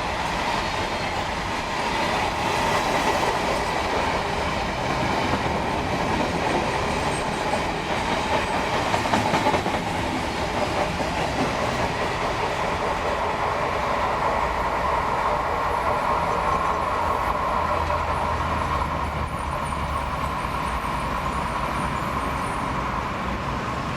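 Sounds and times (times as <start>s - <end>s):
freight train wheels clattering: 0.0s - 13.8s.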